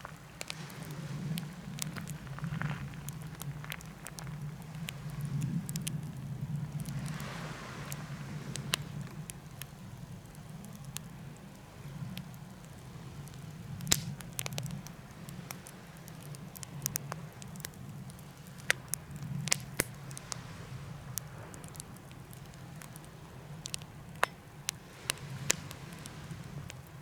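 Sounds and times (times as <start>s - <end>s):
wood fire crackling and popping: 0.0s - 27.0s.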